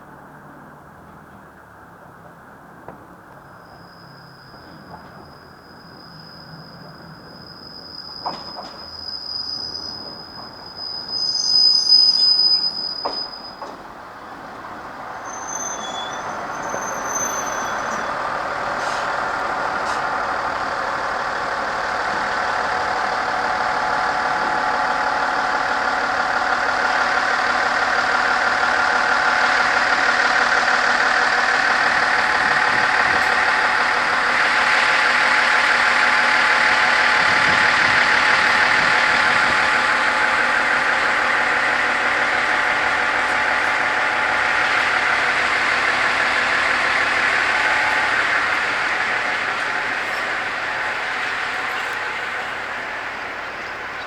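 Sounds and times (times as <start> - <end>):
diesel railcar running: 0.0 - 54.0
wheels and brakes squealing: 3.2 - 54.0.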